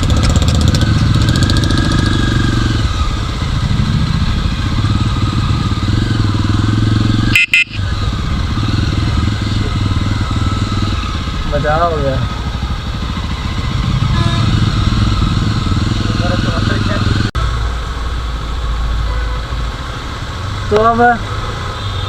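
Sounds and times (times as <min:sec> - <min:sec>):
motorcycle engine running: 0:00.0 - 0:17.4.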